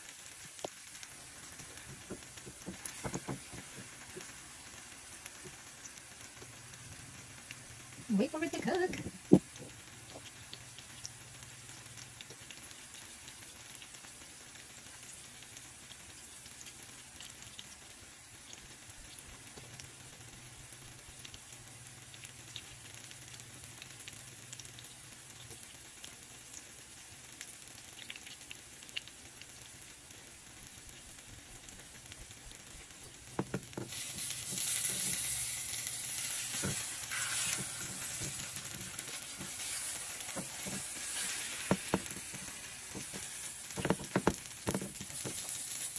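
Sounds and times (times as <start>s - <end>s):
omelette sizzling in a pan: 0.0s - 45.9s
spatula knocking against pan: 2.0s - 3.9s, 33.4s - 33.9s, 41.6s - 45.3s.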